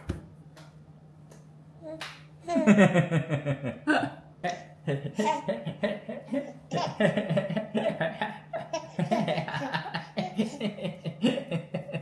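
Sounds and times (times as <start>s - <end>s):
steady low hum: 0.0s - 12.0s
person laughing: 2.5s - 12.0s.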